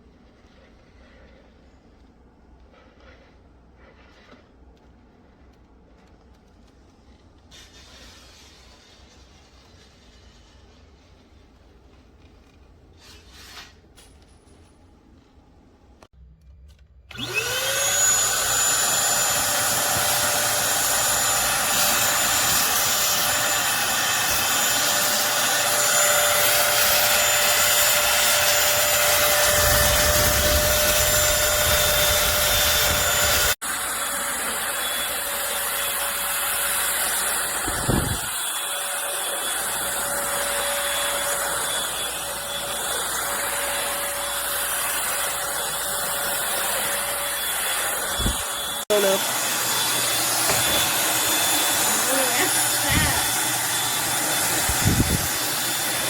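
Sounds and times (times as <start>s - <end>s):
vacuum cleaner motor whining: 16.8s - 56.0s.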